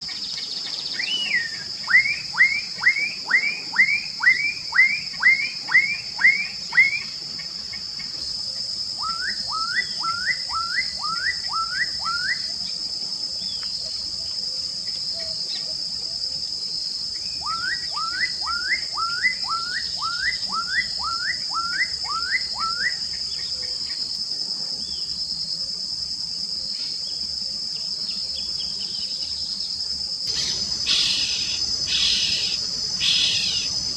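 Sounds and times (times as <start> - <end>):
shrill insect chorus: 0.0 - 33.9
bird singing rising whistled notes: 0.4 - 7.1, 9.0 - 12.6, 17.2 - 23.1, 30.3 - 33.9.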